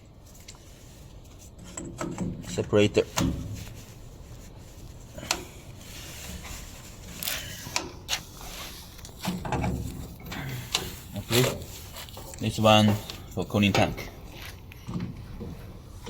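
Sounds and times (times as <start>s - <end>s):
sharp clicks and knocks: 1.6s - 3.5s, 14.7s - 15.8s
rubbing and low bumping: 8.0s - 13.1s.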